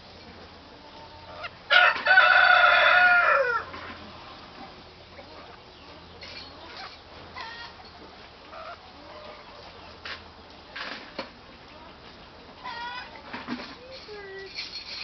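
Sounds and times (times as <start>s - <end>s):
rooster crowing: 1.7s - 3.7s.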